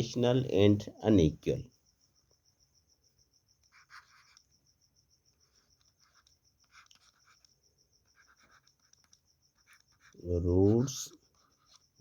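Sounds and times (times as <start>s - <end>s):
scratching of writing: 3.4s - 12.0s.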